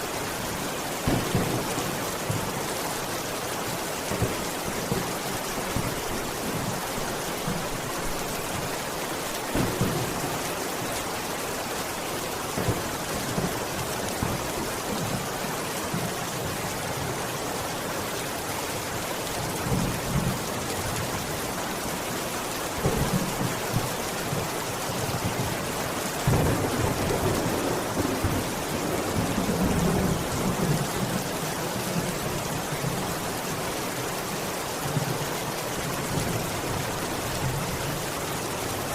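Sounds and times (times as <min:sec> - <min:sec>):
heavy rain falling: 0:00.0 - 0:38.9
low thunder rumbles: 0:26.2 - 0:31.2.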